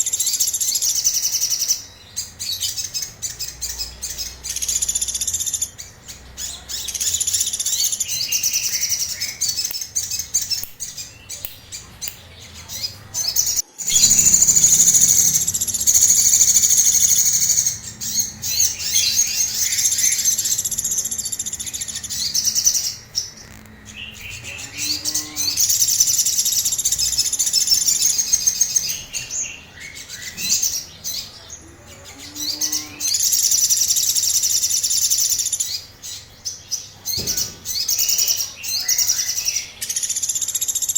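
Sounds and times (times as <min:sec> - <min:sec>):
bird singing rapid chattering notes: 0:00.0 - 0:40.9.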